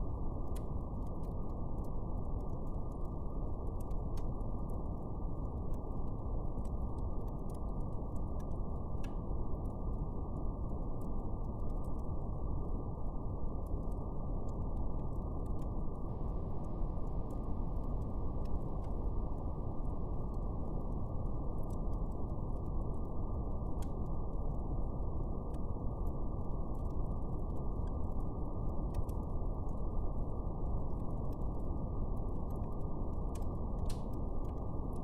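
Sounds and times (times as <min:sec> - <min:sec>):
fire crackling: 0:00.0 - 0:35.0.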